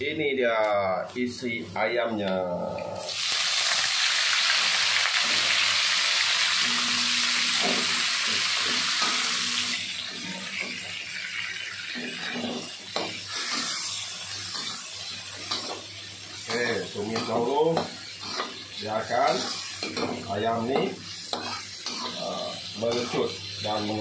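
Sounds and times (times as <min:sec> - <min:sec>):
chicken sizzling in hot oil: 0:03.0 - 0:24.0
metal spatula scraping wok: 0:11.9 - 0:15.9, 0:17.0 - 0:24.0.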